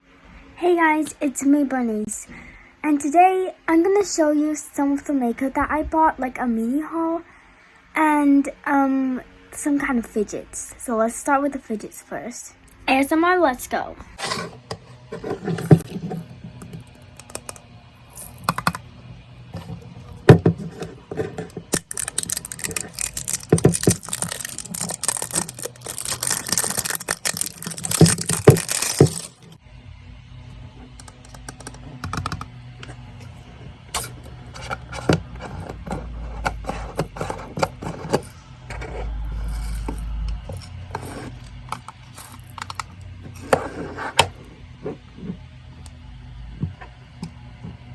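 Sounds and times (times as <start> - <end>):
packaging rustling: 19.6 - 29.6.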